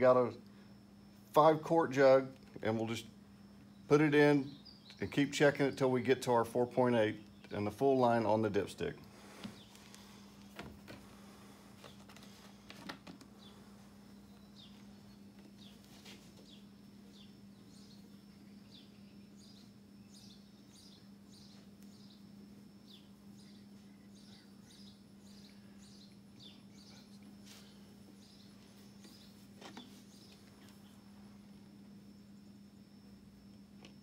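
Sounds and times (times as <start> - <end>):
low steady hum: 0.0 - 34.0
faint bird chirps: 3.3 - 5.9, 13.3 - 33.1.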